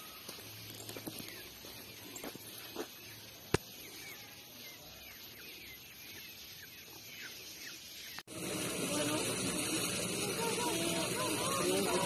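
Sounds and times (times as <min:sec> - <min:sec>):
birds chirping: 0:00.0 - 0:12.0
steady hiss: 0:00.0 - 0:12.0.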